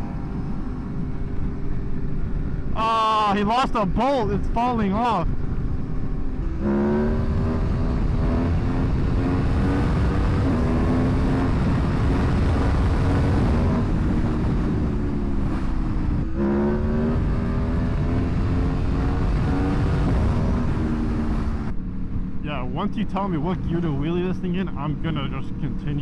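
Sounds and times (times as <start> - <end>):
motorcycle engine accelerating: 0.0 - 2.8, 5.3 - 22.6
low wind rumble: 0.0 - 26.0.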